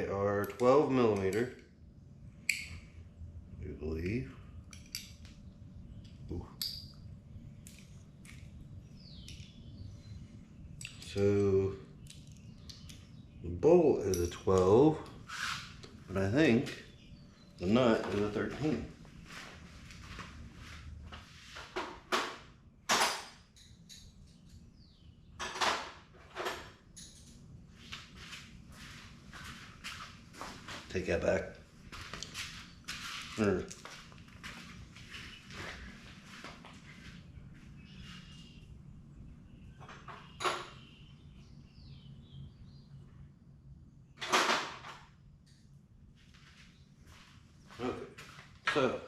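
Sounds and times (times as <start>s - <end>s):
metal tools clinking: 4.7s - 5.2s.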